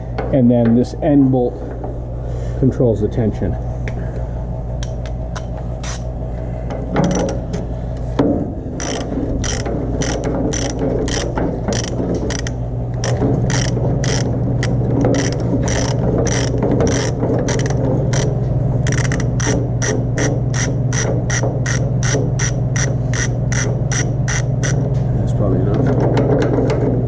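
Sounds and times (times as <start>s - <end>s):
steady low hum: 0.0s - 27.0s
socket ratchet clicking: 8.8s - 24.8s.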